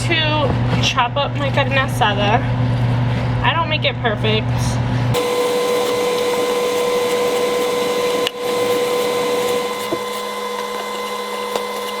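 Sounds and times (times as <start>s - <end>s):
small appliance motor humming: 5.0s - 12.0s.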